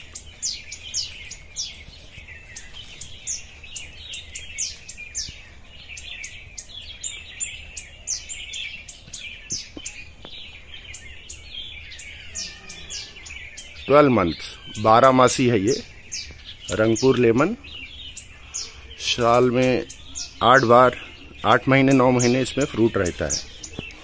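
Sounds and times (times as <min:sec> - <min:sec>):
small birds chirping chorus: 0:00.0 - 0:24.0.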